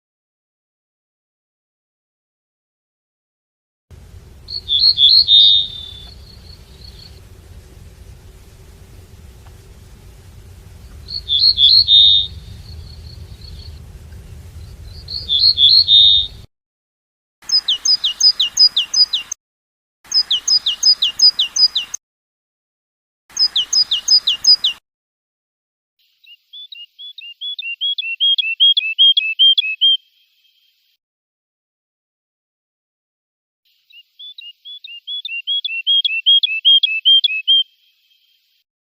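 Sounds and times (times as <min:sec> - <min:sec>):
goldfinch song: 0:03.9 - 0:16.5, 0:17.4 - 0:19.4, 0:20.1 - 0:22.0, 0:23.3 - 0:24.8, 0:26.0 - 0:30.8, 0:33.7 - 0:38.6.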